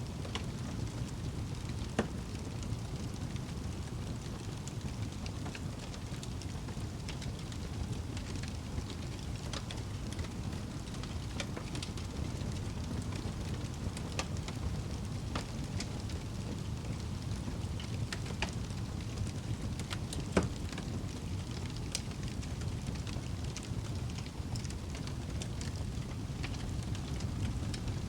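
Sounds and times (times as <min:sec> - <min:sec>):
fire crackling and popping: 0:00.0 - 0:28.0
wood fire burning: 0:00.0 - 0:28.0.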